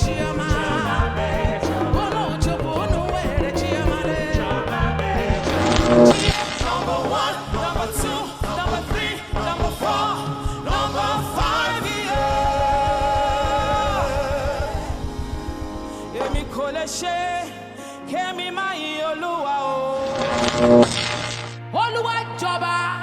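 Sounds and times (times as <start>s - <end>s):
band with steady drum beat: 0.0s - 10.0s
singers holding long notes: 0.0s - 23.0s.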